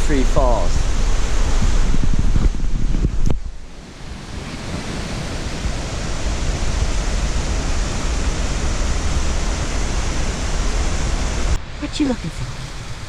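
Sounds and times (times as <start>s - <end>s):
waterfall roaring: 3.8s - 13.0s.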